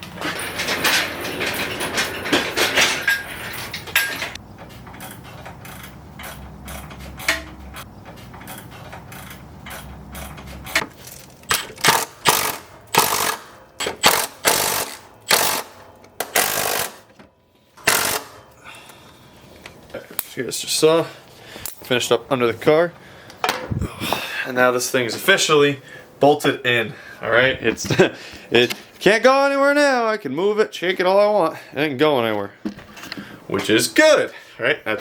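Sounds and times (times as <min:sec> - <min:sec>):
socket ratchet clicking: 0:11.5 - 0:17.0, 0:17.8 - 0:18.4.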